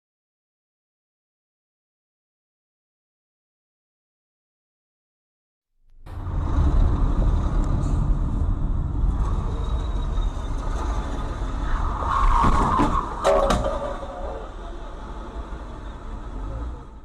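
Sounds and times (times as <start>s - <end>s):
road vehicle rumble: 5.9s - 17.0s.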